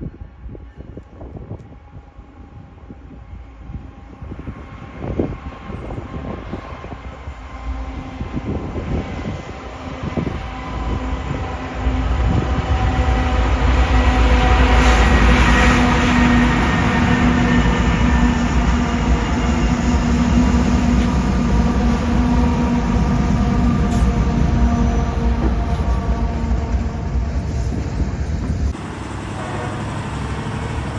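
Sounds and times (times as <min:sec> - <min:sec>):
train rumble: 0:00.0 - 0:30.9.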